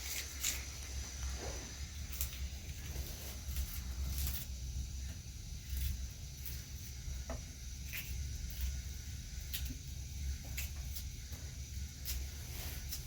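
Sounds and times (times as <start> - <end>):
scraping or crunching sounds: 0.0 - 4.7
steady hiss: 0.0 - 13.0.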